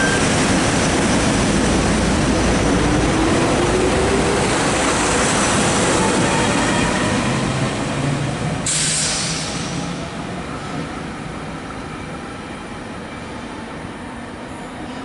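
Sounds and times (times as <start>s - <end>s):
train rumbling on track: 0.0s - 15.0s
burst of hiss: 8.6s - 9.9s.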